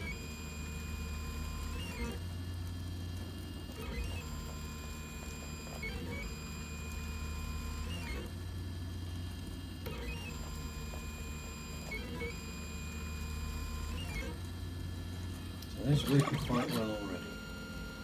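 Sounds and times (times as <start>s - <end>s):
stepper motors whining: 15.8s - 18.0s.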